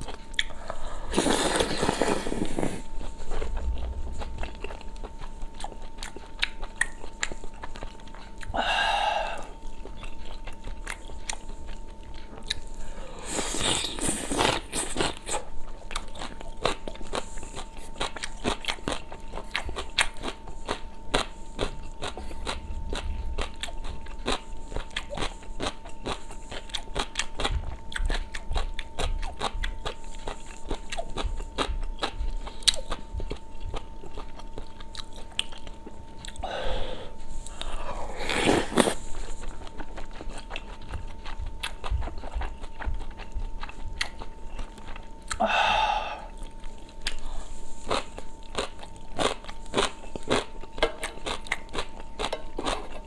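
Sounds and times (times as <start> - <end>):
person chewing: 0.0 - 53.0
person slurping: 1.0 - 2.9, 12.8 - 15.5, 36.5 - 39.2.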